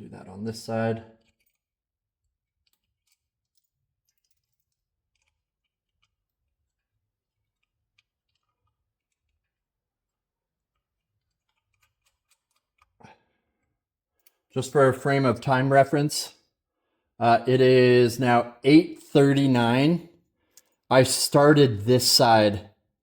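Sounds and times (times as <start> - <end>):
faint clicks and ticks: 1.2 - 14.6, 20.4 - 20.9.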